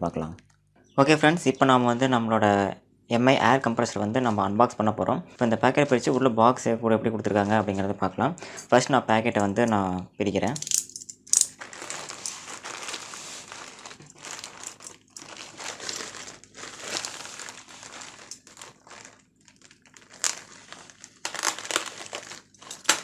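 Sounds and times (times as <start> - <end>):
packet crinkling open: 10.7 - 23.0.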